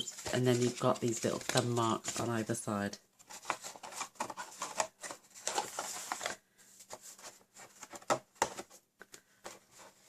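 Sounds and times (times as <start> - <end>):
paper rustling and sliding: 3.2 - 8.8.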